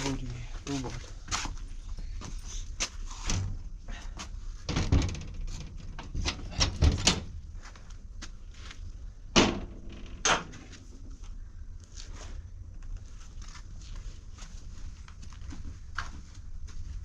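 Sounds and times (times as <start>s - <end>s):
knocks and thuds of doors: 4.6s - 7.7s, 9.3s - 11.2s
sharp bangs: 9.3s - 11.0s.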